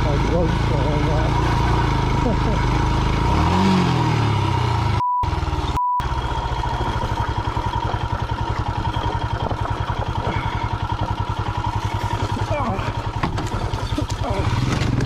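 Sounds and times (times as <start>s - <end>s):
motorcycle engine idling: 0.0s - 15.0s
censor bleeps: 5.0s - 6.1s.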